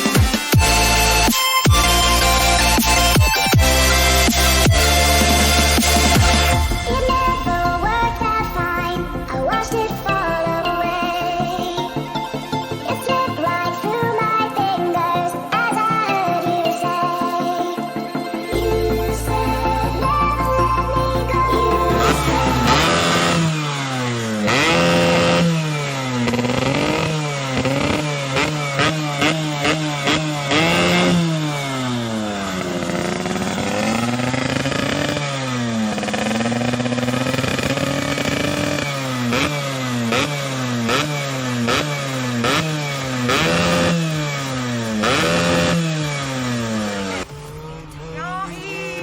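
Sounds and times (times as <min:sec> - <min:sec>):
scooter engine revving: 0:00.0 - 0:49.0.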